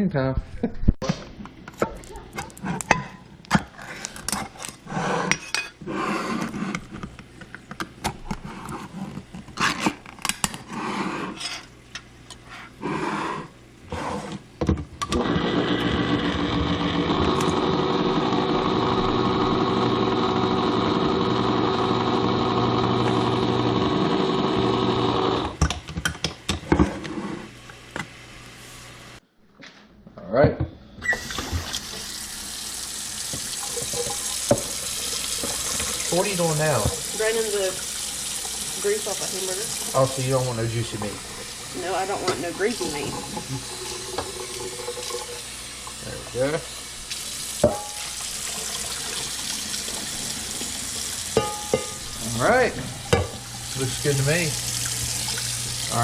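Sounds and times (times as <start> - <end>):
dishes and utensils clattering: 51.3 - 52.1.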